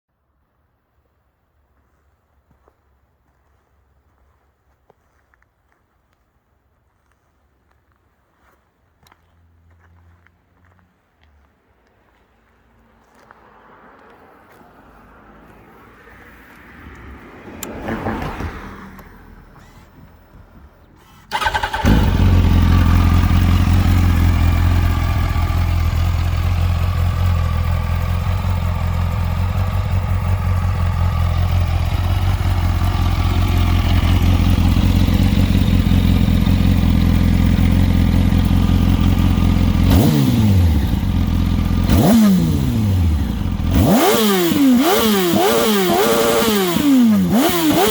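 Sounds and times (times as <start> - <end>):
motorcycle engine idling: 20.8 - 47.9
motorcycle throttle blips: 21.0 - 47.9.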